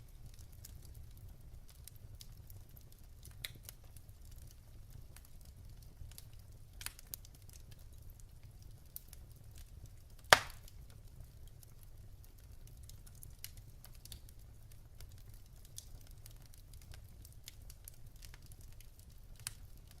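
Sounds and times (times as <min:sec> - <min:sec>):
logs crackling in fire: 0:00.0 - 0:20.0
low steady fire rumble: 0:00.0 - 0:20.0
loud sharp pop: 0:10.3 - 0:10.6.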